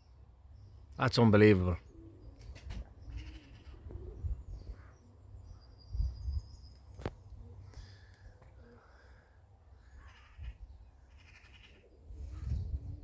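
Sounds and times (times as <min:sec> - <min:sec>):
distant bird calls: 0:00.0 - 0:13.0
wind buffeting microphone: 0:02.5 - 0:06.6, 0:12.1 - 0:13.0.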